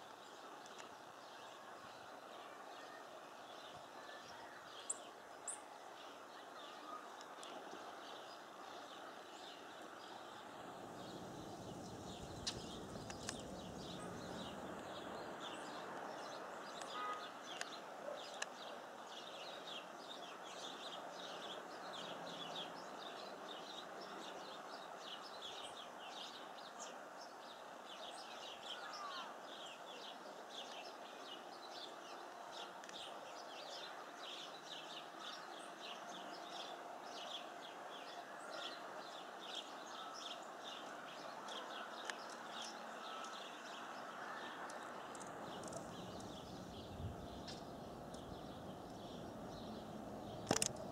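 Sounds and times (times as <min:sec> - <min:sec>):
flock of songbirds chirping: 0:00.0 - 0:50.9
steady background hiss: 0:00.0 - 0:50.9.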